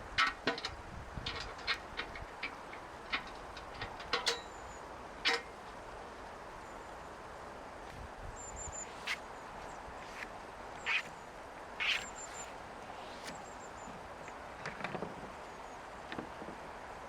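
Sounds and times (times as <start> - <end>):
river water rushing: 4.8 - 14.6.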